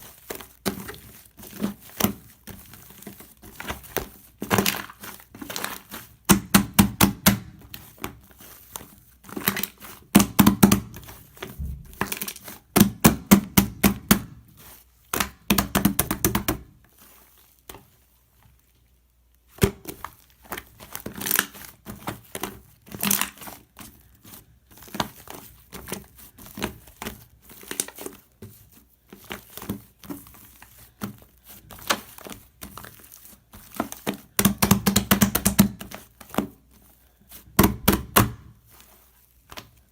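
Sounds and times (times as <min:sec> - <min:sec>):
slime crackling and popping: 0:00.1 - 0:08.2, 0:09.4 - 0:14.4, 0:19.3 - 0:23.4.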